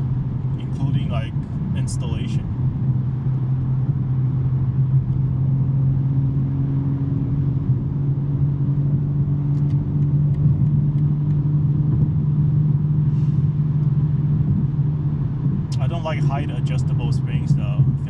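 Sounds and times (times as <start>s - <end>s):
car engine droning while cruising: 0.0s - 18.0s.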